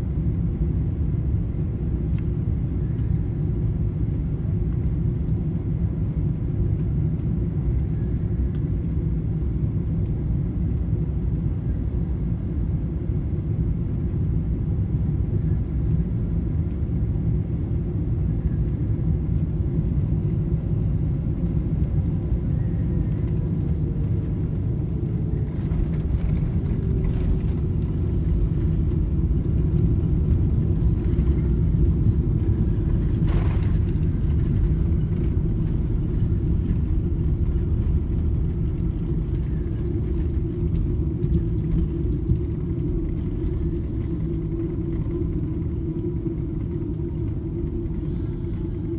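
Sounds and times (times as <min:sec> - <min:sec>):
airplane cabin rumble: 0:00.0 - 0:48.9.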